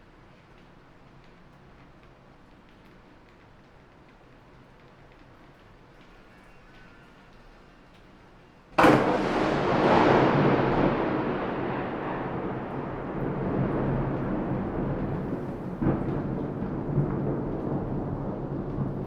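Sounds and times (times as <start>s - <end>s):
thunderclap crack and rumble: 8.8s - 19.0s.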